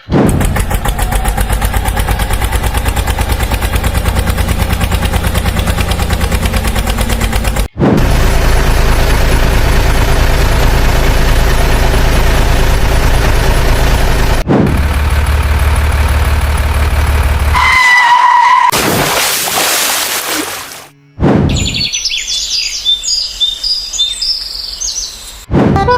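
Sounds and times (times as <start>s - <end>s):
vehicle engine hum: 0.0s - 18.7s.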